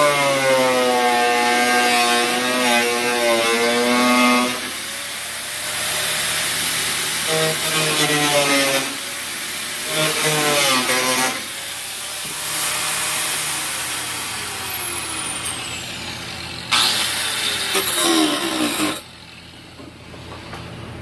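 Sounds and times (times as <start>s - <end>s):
power tool motor running: 0.0s - 20.5s.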